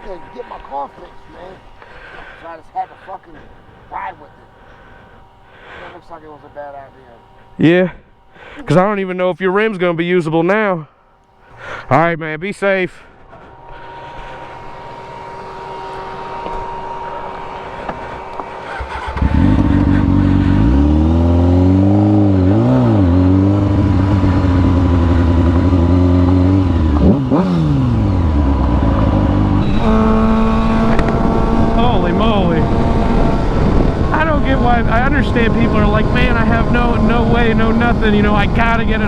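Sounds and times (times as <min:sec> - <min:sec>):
motorcycle engine accelerating: 0:00.0 - 0:08.9, 0:13.2 - 0:39.0
road and wind noise: 0:13.6 - 0:39.0.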